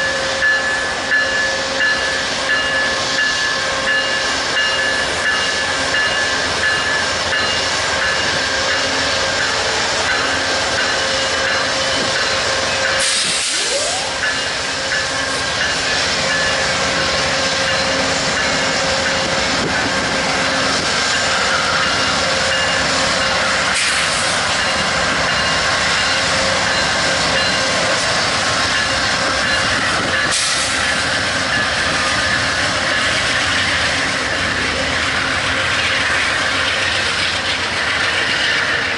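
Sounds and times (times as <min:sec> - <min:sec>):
train wheels on rails: 0:00.0 - 0:38.9
wind buffeting microphone: 0:18.2 - 0:22.9, 0:27.2 - 0:34.6.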